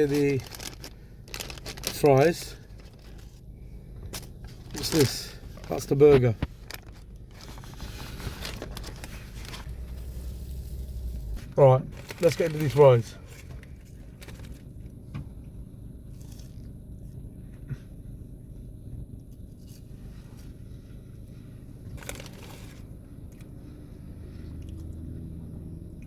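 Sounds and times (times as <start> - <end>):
low steady hum: 0.0 - 26.0
crunchy chewing: 16.0 - 17.2, 24.4 - 25.2.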